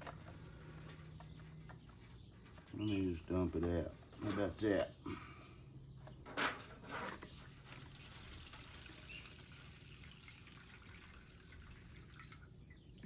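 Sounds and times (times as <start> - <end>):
faint liquid trickle: 7.4 - 13.0.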